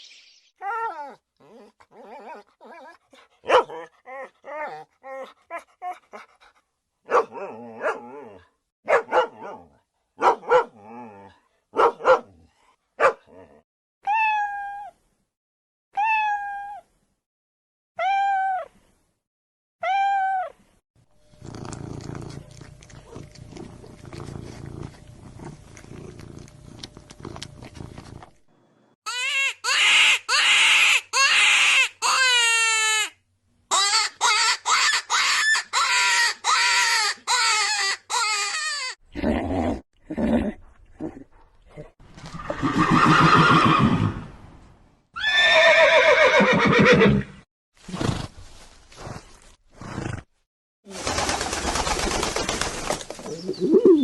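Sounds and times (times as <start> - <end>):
dog barking: 3.4 - 3.9, 7.1 - 8.2, 8.8 - 10.8, 11.7 - 12.4, 13.0 - 13.3
cat meowing: 16.0 - 16.8
cat purring: 21.3 - 28.3.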